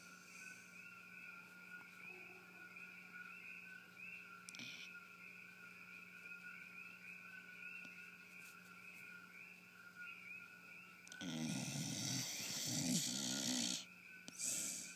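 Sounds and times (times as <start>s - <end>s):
faint steady whine: 0.0s - 14.9s
dog snoring: 11.1s - 14.8s.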